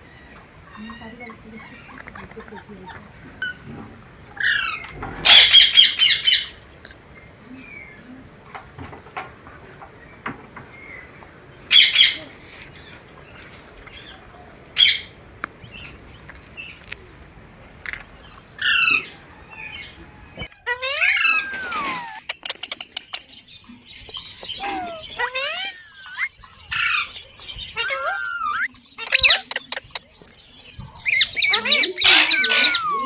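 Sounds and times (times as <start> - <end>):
parrot screeching: 4.4 - 6.5, 11.7 - 12.2, 20.6 - 22.2, 24.6 - 27.1, 27.7 - 29.5, 31.1 - 33.0.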